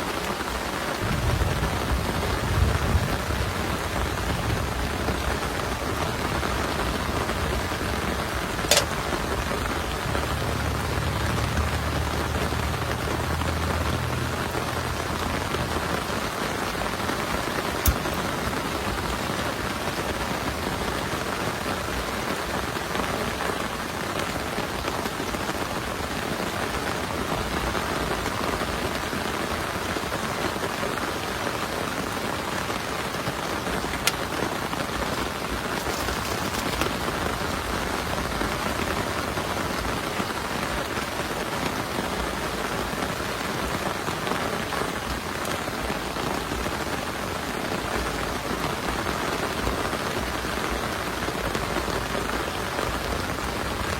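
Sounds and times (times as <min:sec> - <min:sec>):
steady rain falling: 0:00.0 - 0:53.9
sharp tick: 0:08.7 - 0:09.0.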